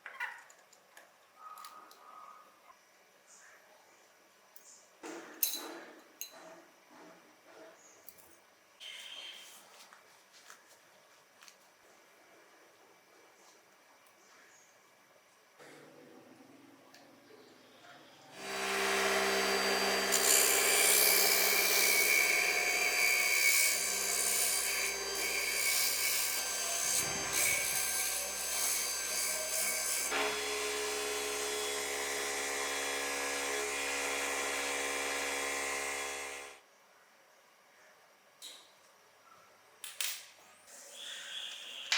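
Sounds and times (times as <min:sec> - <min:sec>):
tool grinding material: 0:18.4 - 0:36.6.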